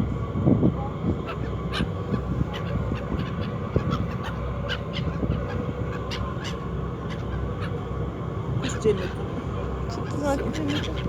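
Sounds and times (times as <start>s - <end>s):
seagulls calling and squabbling: 1.2s - 11.0s.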